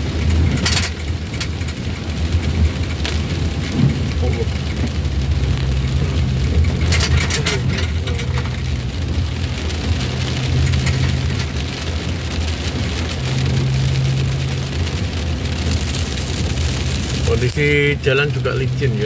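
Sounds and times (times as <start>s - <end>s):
engine humming: 0.0s - 19.0s
heavy rain on vehicle roof: 0.0s - 19.0s.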